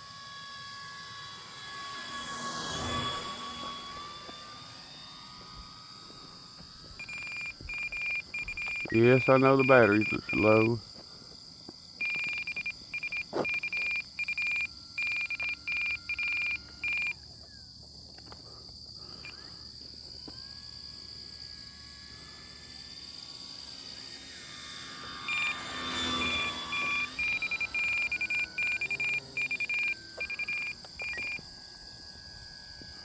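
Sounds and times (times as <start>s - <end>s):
low-battery alarm beeping: 0.0s - 10.9s, 12.0s - 17.4s, 19.0s - 33.0s
crickets chirping: 0.0s - 33.0s.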